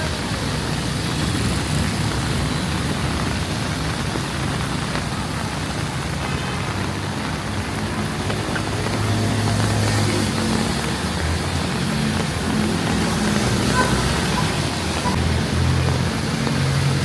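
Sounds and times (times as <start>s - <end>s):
heavy rain falling: 0.0s - 17.0s
road traffic hum: 0.0s - 17.0s.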